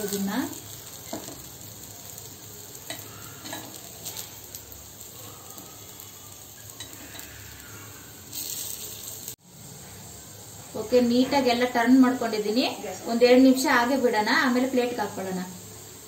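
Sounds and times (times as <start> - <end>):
food sizzling in oil: 0.0 - 16.0
metal spoon scraping pan: 2.8 - 4.3.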